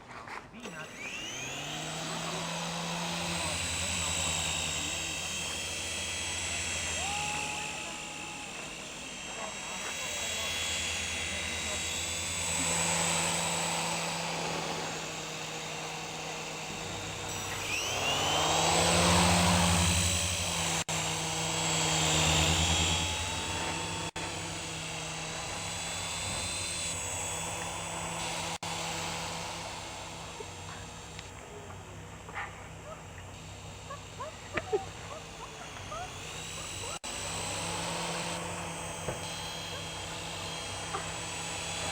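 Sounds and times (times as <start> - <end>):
electric motors whining: 0.0 - 41.9
rotor blades buzzing: 0.0 - 41.9.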